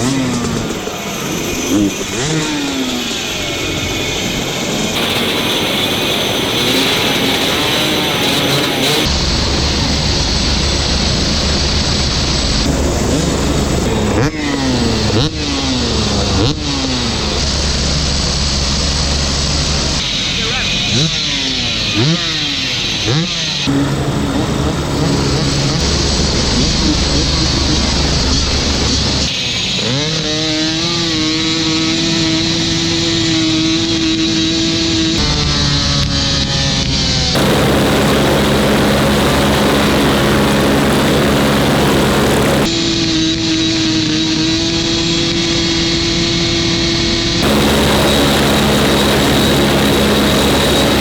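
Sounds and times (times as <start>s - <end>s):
helicopter turbine drone: 0.0s - 30.0s, 33.7s - 43.6s, 44.6s - 51.0s
dirt bike engine revving: 5.0s - 9.1s, 20.9s - 26.6s, 29.6s - 36.3s, 37.2s - 42.7s, 47.4s - 51.0s.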